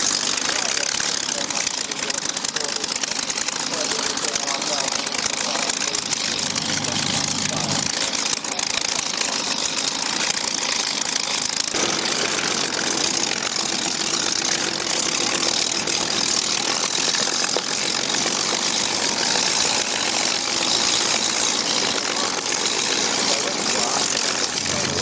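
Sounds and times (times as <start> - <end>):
propeller aircraft engine running: 4.8 - 9.1, 9.7 - 17.2, 24.0 - 25.0.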